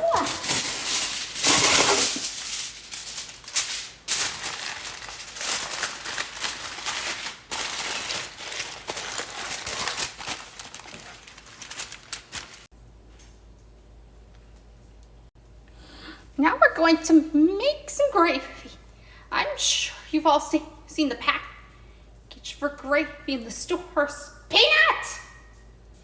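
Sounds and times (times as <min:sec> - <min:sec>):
aluminum foil crinkling: 0:00.0 - 0:12.7.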